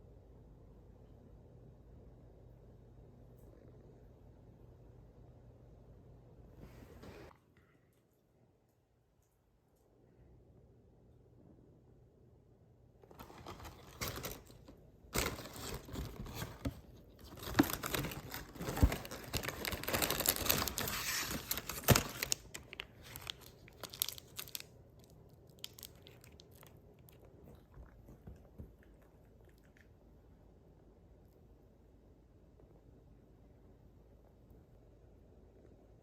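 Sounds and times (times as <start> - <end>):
plastic packaging crinkling: 13.0 - 27.2
plastic tearing: 13.1 - 26.4.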